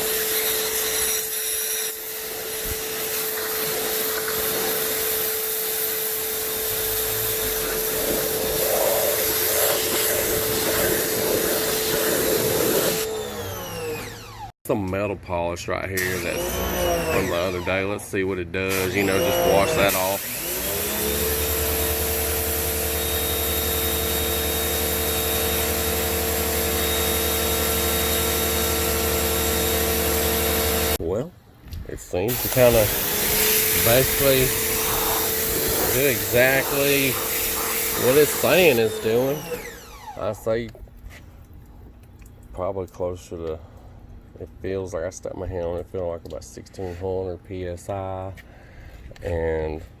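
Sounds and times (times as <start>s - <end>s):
pressure washer motor whine: 0.0s - 14.6s, 16.0s - 18.0s, 18.7s - 31.0s, 32.3s - 40.7s
water spray hissing: 2.3s - 13.0s, 32.3s - 39.7s.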